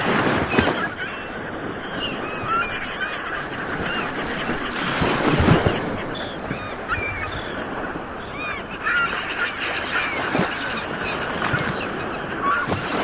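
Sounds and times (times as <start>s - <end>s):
flock of birds calling: 0.0s - 13.0s
ocean surf rolling in: 0.0s - 13.0s.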